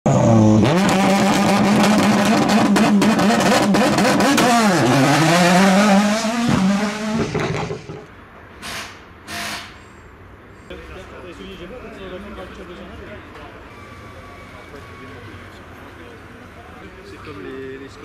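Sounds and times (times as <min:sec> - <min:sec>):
race car engine revving: 0:00.1 - 0:08.1.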